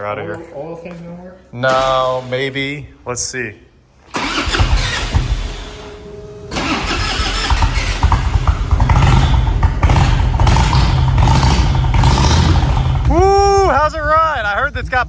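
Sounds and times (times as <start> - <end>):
motorcycle engine starting: 4.1 - 13.8
motorcycle engine rumbling: 4.1 - 15.0.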